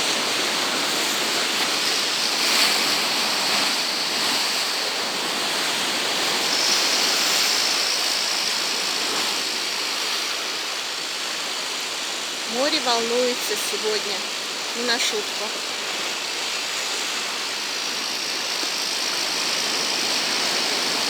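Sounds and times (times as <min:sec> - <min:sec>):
heavy surf breaking: 0:00.0 - 0:11.4.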